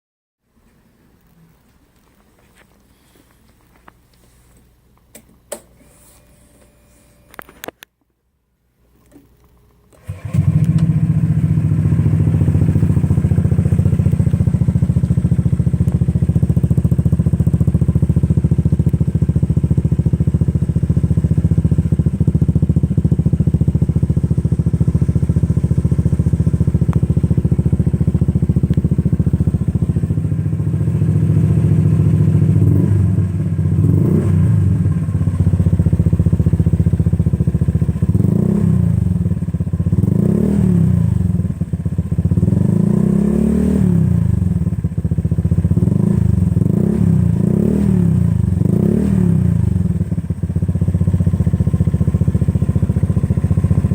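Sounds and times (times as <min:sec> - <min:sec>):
scooter engine idling: 0:10.0 - 0:42.9, 0:44.0 - 0:53.9
scooter engine revving: 0:10.0 - 0:53.9.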